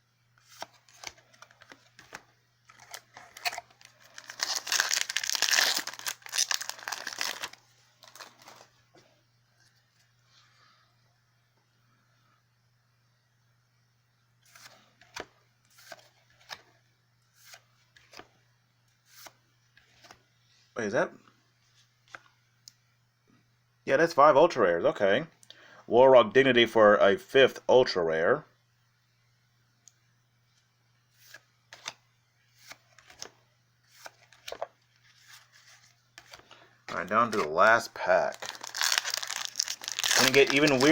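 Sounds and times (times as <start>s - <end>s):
faint low hum: 0.0s - 40.9s
cards sliding against each other: 14.4s - 16.6s, 17.4s - 18.3s, 19.0s - 20.2s, 31.2s - 33.3s, 33.9s - 36.5s.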